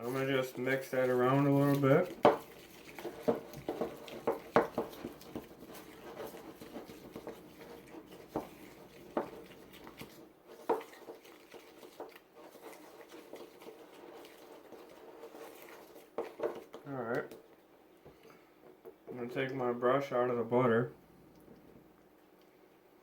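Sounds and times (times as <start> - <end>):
utensil stirring mixture in a bowl: 0.0 - 23.0
utensil tapping against bowl: 2.0 - 5.7.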